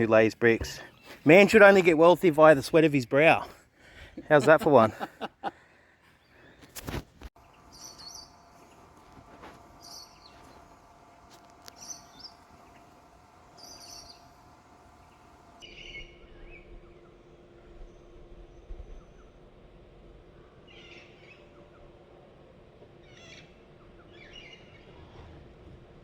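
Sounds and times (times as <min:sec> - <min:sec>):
birds chirping: 0:00.0 - 0:06.8, 0:07.4 - 0:19.4
faint outdoor background noise: 0:00.0 - 0:26.0.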